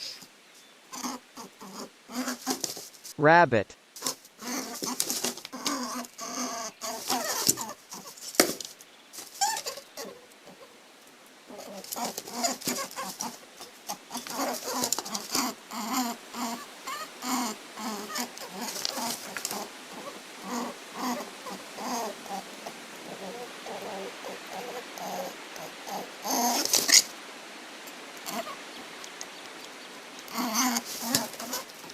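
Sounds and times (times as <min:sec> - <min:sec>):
rabbit squeaky calls: 0:09.2 - 0:10.2.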